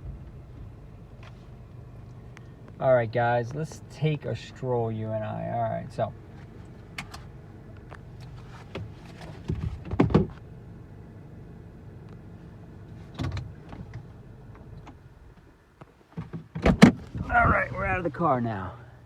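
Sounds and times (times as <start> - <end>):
car engine humming: 0.0 - 19.0
clicks and thumps in car: 6.3 - 10.5, 13.0 - 18.1.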